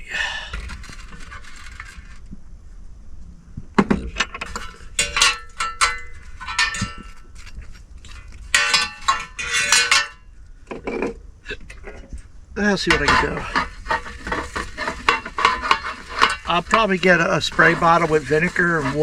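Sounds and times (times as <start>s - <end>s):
dishes and cutlery clinking: 8.6s - 10.2s.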